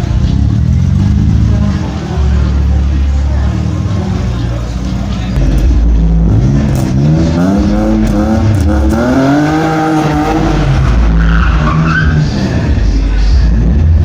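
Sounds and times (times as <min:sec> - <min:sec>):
car engine revving: 0:00.0 - 0:14.0
tyre squeal: 0:11.1 - 0:12.6.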